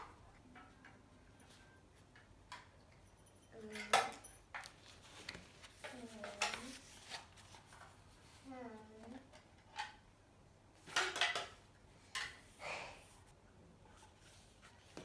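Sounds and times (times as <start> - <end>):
cutlery and dishes clinking: 3.4 - 4.7, 10.9 - 11.6.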